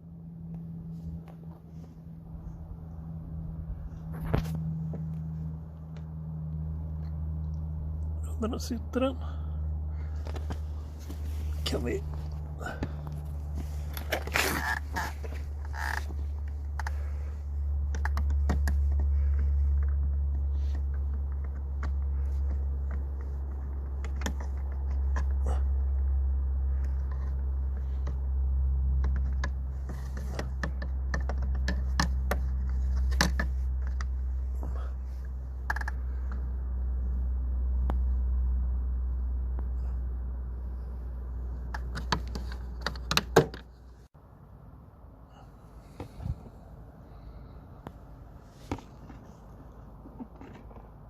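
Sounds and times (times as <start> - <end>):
low rumble on microphone: 0.0 - 31.1.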